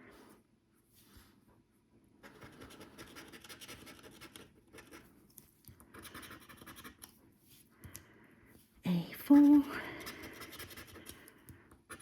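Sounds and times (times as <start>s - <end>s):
scratchcard scratching: 2.2s - 5.1s, 5.9s - 7.1s, 10.0s - 11.2s.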